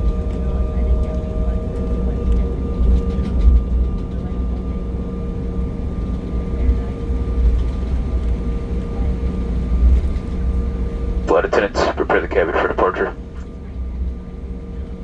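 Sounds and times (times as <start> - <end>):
constant humming tones: 11.2 - 13.5
jet cabin low rumble: 11.3 - 13.5.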